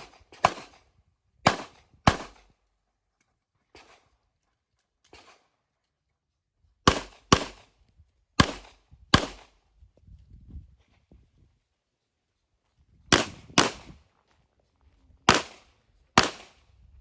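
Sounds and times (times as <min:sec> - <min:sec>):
pistol shots: 0:00.0 - 0:00.8, 0:01.4 - 0:02.5, 0:06.8 - 0:07.7, 0:08.4 - 0:09.5, 0:13.1 - 0:14.0, 0:15.3 - 0:16.6.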